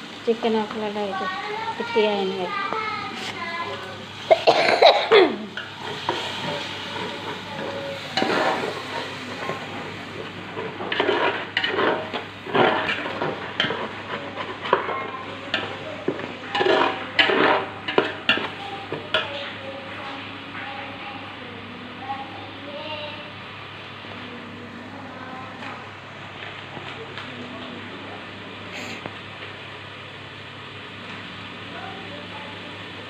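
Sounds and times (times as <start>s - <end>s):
sizzle of frying: 0.0s - 33.0s
spoon scraping frying pan: 5.5s - 19.4s.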